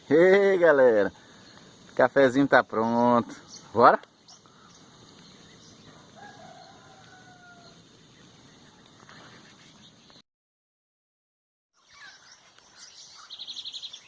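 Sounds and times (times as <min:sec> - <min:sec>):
faint outdoor background: 0:00.0 - 0:10.2, 0:11.7 - 0:14.0
distant rooster crowing: 0:05.8 - 0:07.9.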